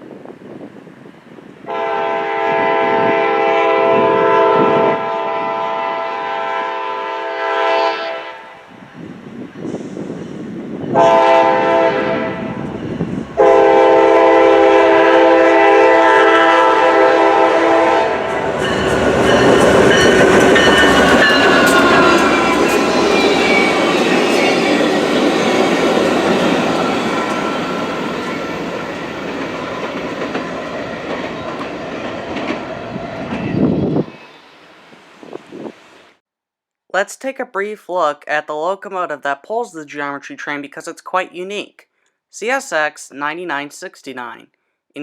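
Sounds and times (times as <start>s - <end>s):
train horn blasts: 1.7s - 8.7s, 10.9s - 12.8s, 13.4s - 24.5s
locomotive rushing by: 17.0s - 36.1s
clatter of train cars: 18.3s - 34.1s.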